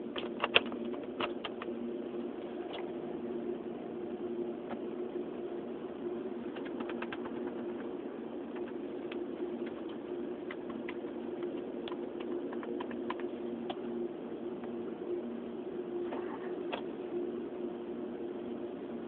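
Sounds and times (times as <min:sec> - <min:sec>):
car audio speakers humming: 0:00.0 - 0:19.0.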